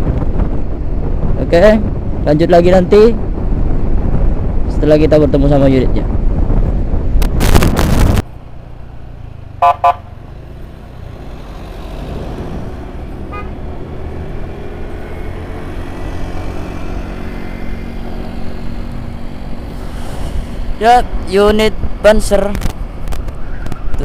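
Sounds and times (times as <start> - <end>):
wind noise on microphone: 0.0 - 9.0, 10.9 - 24.0
engine and road noise: 0.0 - 24.0
vehicle horn toots: 9.6 - 10.1, 13.3 - 13.6.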